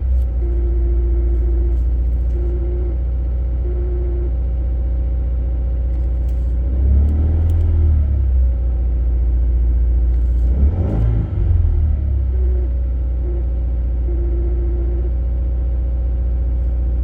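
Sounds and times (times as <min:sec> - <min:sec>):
transmission whine: 0:00.0 - 0:04.6
car engine idling: 0:00.0 - 0:17.0.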